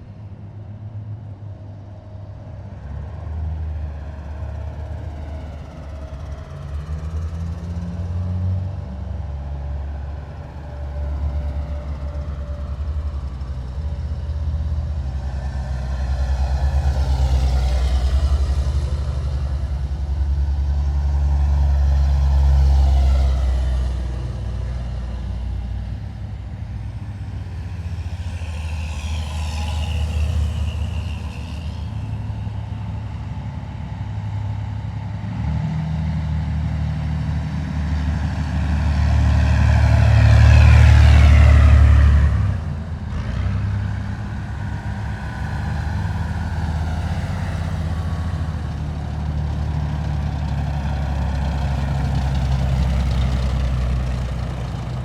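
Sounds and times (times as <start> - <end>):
heavy military vehicles driving past: 0.0 - 55.0.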